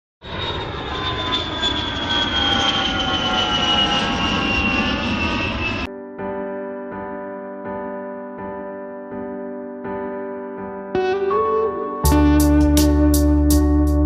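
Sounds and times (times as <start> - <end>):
jet aircraft passing: 0.2 - 5.9
piano music: 5.8 - 14.0.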